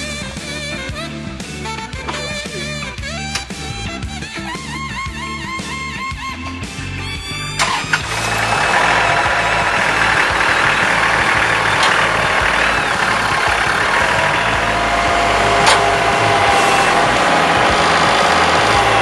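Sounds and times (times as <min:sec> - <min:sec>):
tractor engine running: 0:06.6 - 0:19.0
sharp clicks: 0:07.6 - 0:17.4.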